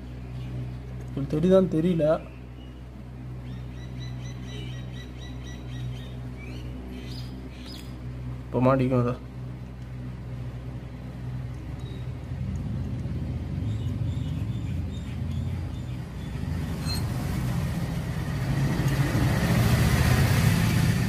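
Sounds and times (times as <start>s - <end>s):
road traffic rumble: 0.0s - 21.0s
vehicle passing close by: 11.2s - 21.0s.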